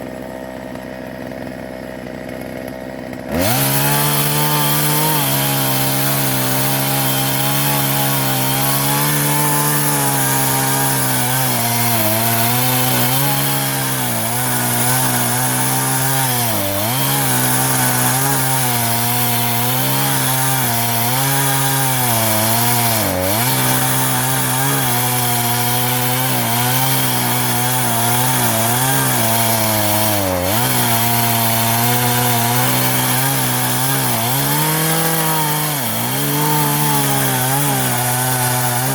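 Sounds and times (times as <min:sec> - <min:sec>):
chainsaw cutting through log: 0:00.0 - 0:38.9.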